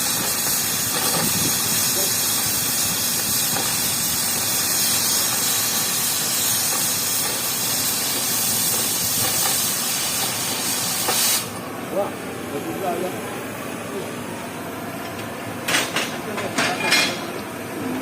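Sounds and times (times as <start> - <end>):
welding torch flame hissing: 0.0 - 11.7.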